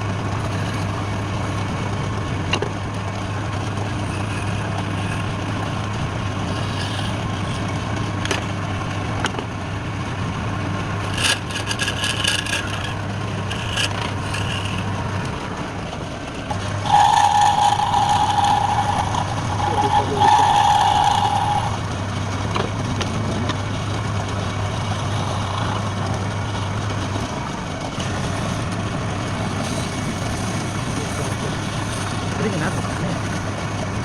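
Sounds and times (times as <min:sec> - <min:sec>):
wood lathe motor hum: 0:00.0 - 0:34.0
rattling clicks: 0:11.0 - 0:15.4.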